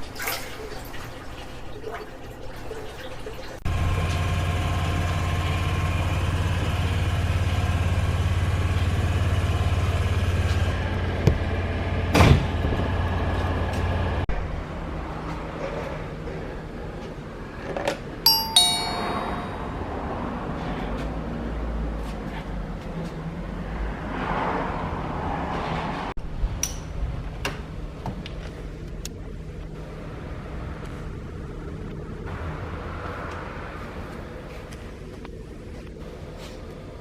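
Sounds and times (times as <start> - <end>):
engine hum: 3.6 - 14.4
two-note falling chime: 18.3 - 20.2.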